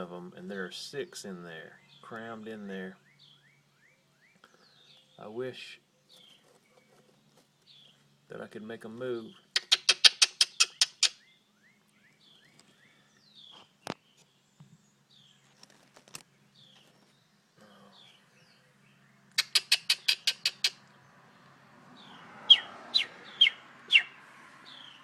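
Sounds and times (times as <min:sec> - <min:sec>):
young birds chirping: 0:00.0 - 0:25.0
rapid sharp clicking: 0:09.6 - 0:11.1.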